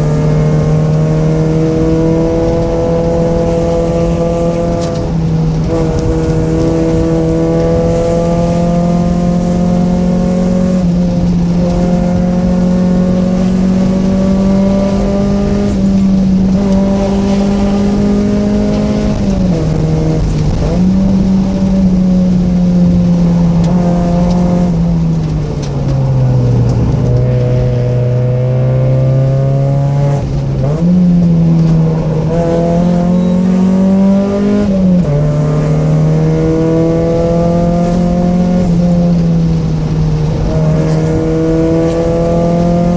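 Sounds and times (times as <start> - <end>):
car engine revving through gears: 0.0 - 42.9.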